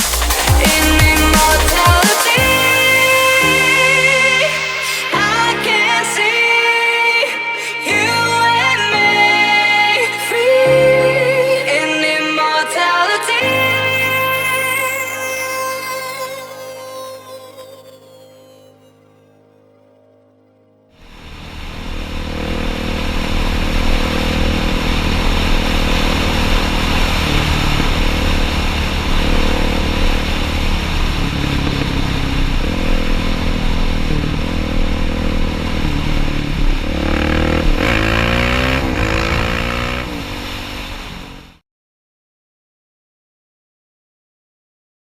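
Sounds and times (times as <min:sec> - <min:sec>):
dirt bike engine revving: 0:21.0 - 0:41.5
wind and road noise: 0:21.1 - 0:41.6.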